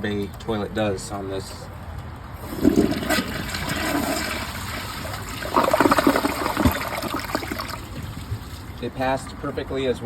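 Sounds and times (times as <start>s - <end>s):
toilet bowl gurgling: 2.4s - 8.5s
toilet flushing: 2.4s - 8.6s.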